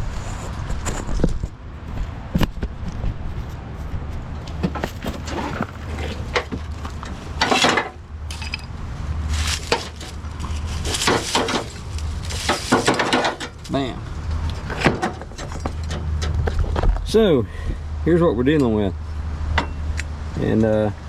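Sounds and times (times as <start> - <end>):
metal knocks and clanks: 4.6 - 8.7, 9.6 - 17.1, 19.5 - 19.9
metal scraping: 4.7 - 16.8.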